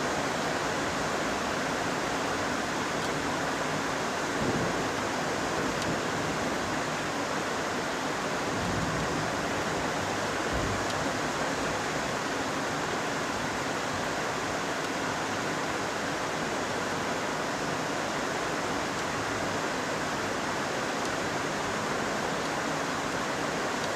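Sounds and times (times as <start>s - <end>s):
heavy rain falling: 0.0s - 23.9s.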